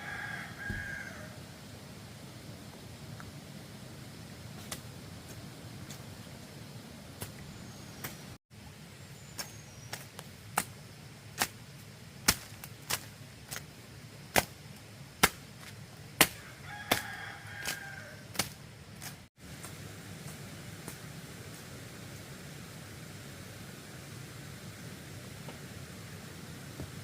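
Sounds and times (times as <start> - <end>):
sharp knocks on bamboo: 15.2 - 15.4.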